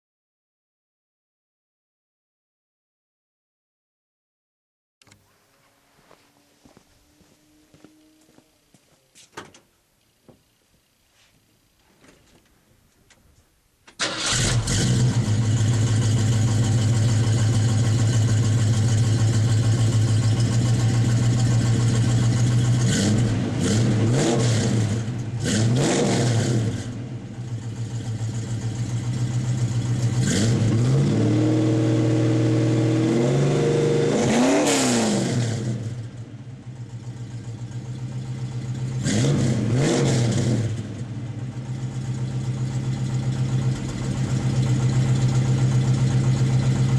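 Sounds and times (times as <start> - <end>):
car engine revving: 5.5 - 8.8, 14.0 - 46.9.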